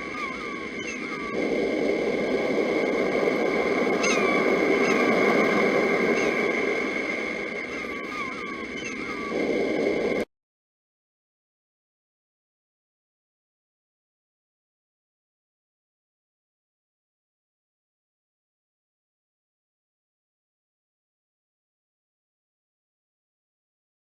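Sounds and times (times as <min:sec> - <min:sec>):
bird chirping: 0:00.0 - 0:09.6
sea surf surging: 0:00.0 - 0:10.2
steady high whine: 0:00.0 - 0:10.3.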